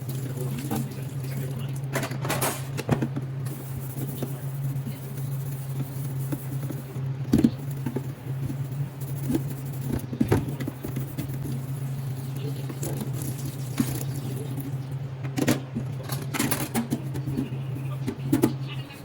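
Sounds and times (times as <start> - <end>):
steady low hum: 0.0 - 19.0
kitchen items knocking and clinking: 1.9 - 3.2.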